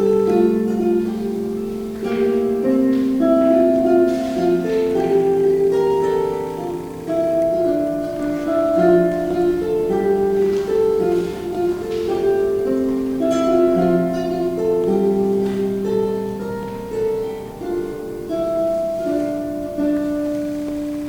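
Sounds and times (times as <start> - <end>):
harp playing slow melody: 0.0 - 21.0.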